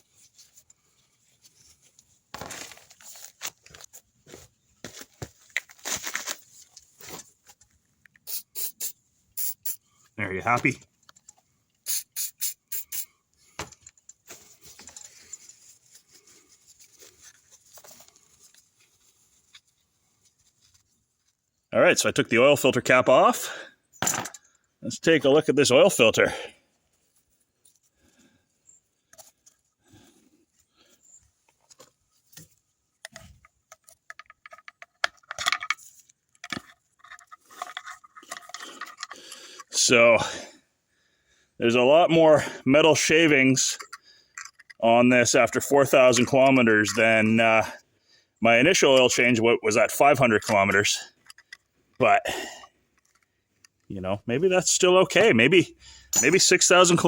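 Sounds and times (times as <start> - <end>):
tools and parts rustling and scraping: 0.0 - 21.7, 23.9 - 24.8, 26.8 - 39.8, 43.2 - 44.8, 45.4 - 47.2, 50.4 - 54.0, 55.1 - 57.0
short hissing bursts: 8.2 - 9.8, 11.8 - 13.2
small metal parts clinking: 33.0 - 39.2, 43.7 - 44.8, 51.2 - 51.7.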